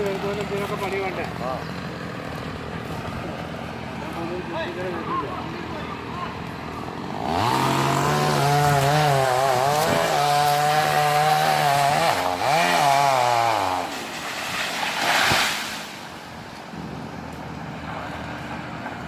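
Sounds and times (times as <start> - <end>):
chainsaw revving: 7.0 - 15.9.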